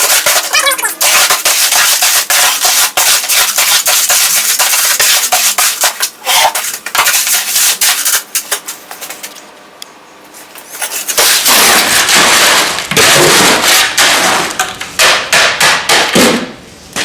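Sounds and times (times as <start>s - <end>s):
shovel scraping wet concrete: 0.0s - 8.6s, 10.7s - 14.6s.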